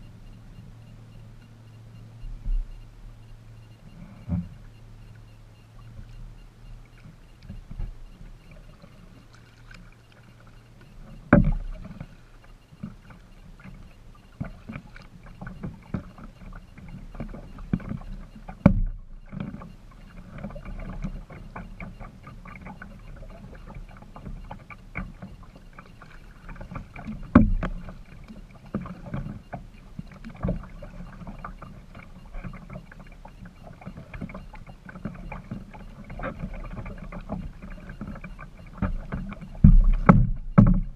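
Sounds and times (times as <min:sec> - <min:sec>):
kayak paddling: 0:00.0 - 0:40.9
water noise: 0:00.0 - 0:40.9
knocks and clicks: 0:35.2 - 0:40.9.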